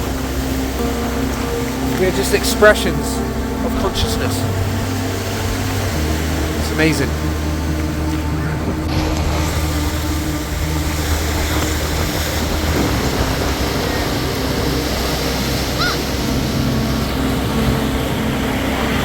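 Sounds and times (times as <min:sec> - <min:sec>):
rough sea surf: 0:00.0 - 0:19.0
strong wind on microphone: 0:03.2 - 0:19.0.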